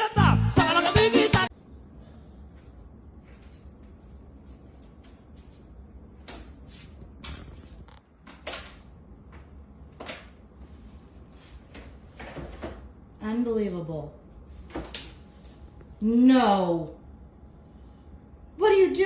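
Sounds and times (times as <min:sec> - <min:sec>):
low steady hum: 0:01.4 - 0:19.0.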